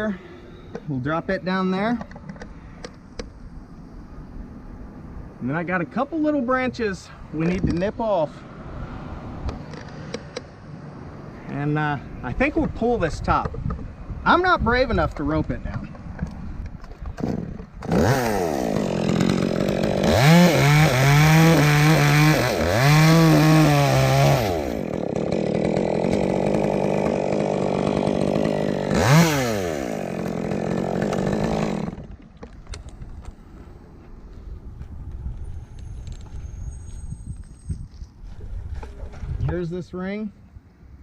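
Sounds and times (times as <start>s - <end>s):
chainsaw cutting wood: 16.2s - 32.7s.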